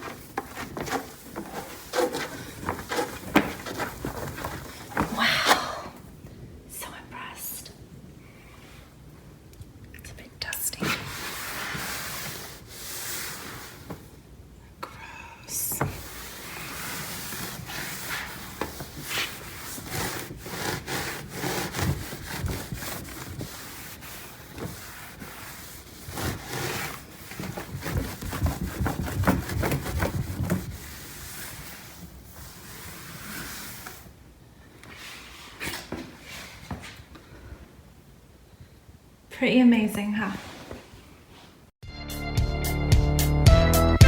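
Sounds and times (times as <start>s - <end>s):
cloth wiping a car surface: 10.8s - 14.1s, 15.9s - 34.1s.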